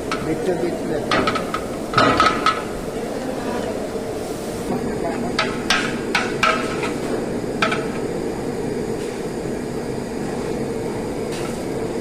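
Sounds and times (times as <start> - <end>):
metal utensils clanking on pot: 0.0 - 2.8, 5.2 - 8.0.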